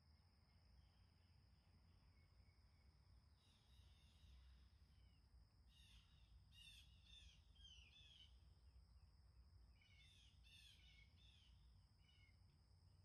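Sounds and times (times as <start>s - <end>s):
faint bird chirps: 2.1s - 8.4s, 9.7s - 12.5s.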